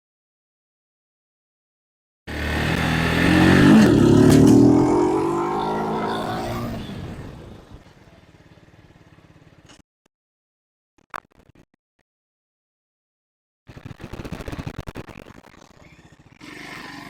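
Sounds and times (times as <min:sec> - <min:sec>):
motorcycle engine accelerating: 0:02.3 - 0:09.6.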